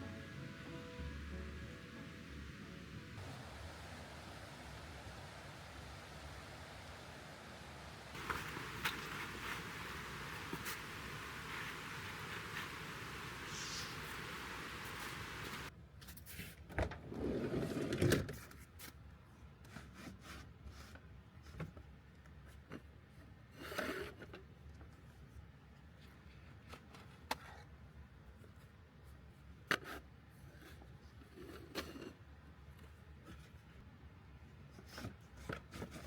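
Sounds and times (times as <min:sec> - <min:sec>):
steady hiss: 0:00.0 - 0:15.7
objects rubbing and scraping: 0:08.2 - 0:15.7.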